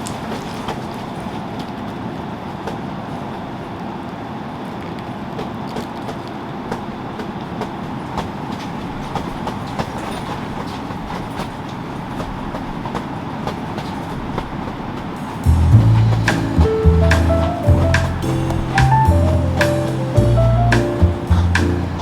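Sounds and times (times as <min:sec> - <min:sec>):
steady rain: 0:15.2 - 0:22.0
heavy drops tapping: 0:15.4 - 0:22.0.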